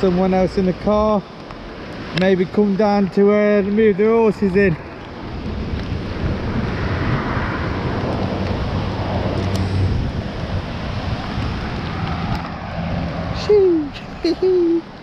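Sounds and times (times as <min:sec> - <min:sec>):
car engine hum: 0:00.0 - 0:15.0
storm wind buffeting microphone: 0:00.0 - 0:15.0.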